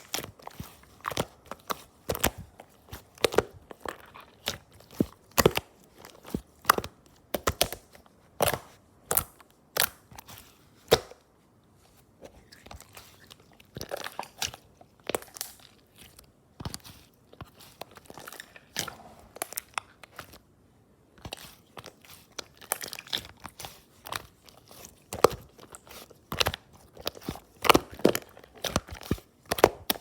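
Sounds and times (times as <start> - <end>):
slime squished by hand: 0.0 - 11.3, 12.2 - 20.5, 21.1 - 30.0.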